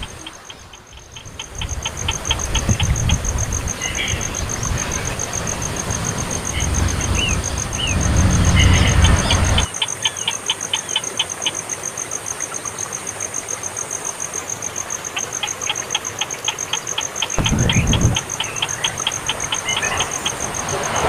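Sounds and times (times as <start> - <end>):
high-pitched ticking: 0.0 - 3.4, 15.2 - 20.7
low rumble: 17.4 - 21.0.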